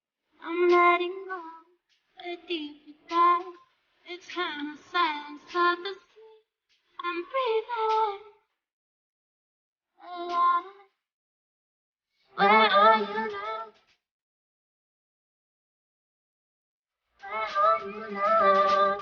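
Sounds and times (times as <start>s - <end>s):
person singing high unaccompanied: 0.4s - 3.6s, 12.4s - 13.8s, 17.2s - 19.0s.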